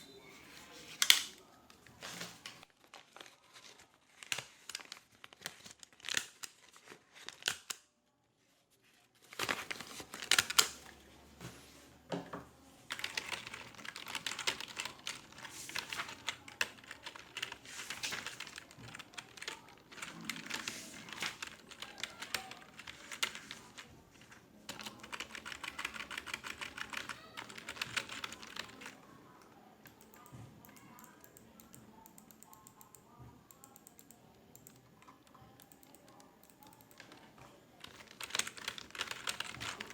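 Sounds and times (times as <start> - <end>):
typing on computer keyboard: 9.4 - 10.9, 12.9 - 23.9, 24.7 - 29.0, 29.8 - 37.2, 37.8 - 39.9.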